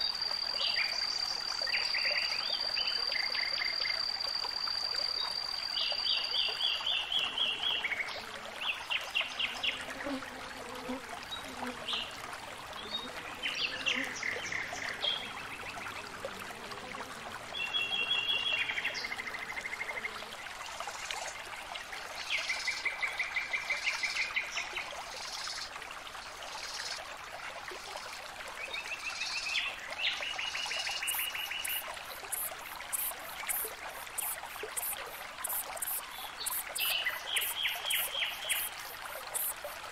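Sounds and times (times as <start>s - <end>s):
stream trickling: 0.0s - 39.9s
songbirds trilling: 30.9s - 39.7s.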